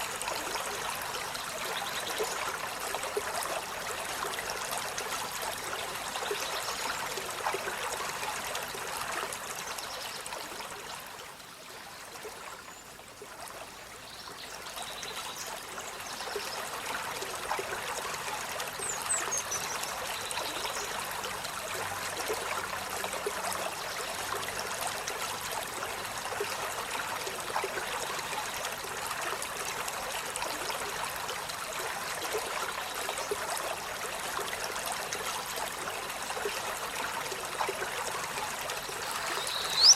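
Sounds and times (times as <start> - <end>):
running water rushing: 0.0 - 12.4, 13.0 - 39.9
faint high chirps: 39.2 - 39.9.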